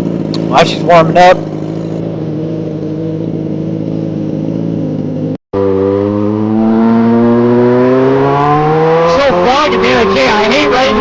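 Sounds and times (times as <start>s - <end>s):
motorcycle engine idling: 0.0s - 5.4s.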